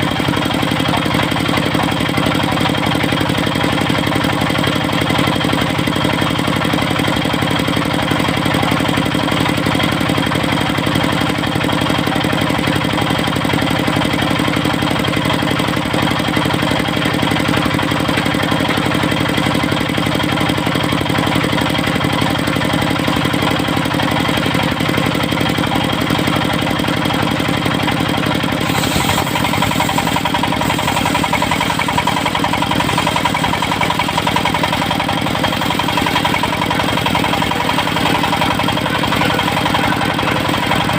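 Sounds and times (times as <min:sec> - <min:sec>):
sawmill engine running: 0:00.0 - 0:40.9
high hiss: 0:28.6 - 0:34.4.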